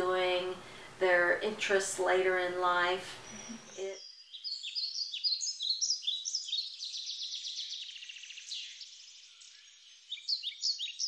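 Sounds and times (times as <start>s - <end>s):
songbirds chirping: 0.0s - 11.0s
bird trill: 3.2s - 11.0s.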